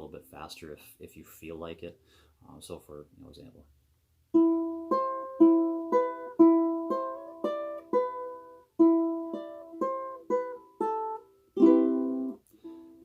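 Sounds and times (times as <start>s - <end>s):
solo ukulele melody: 4.3s - 13.0s.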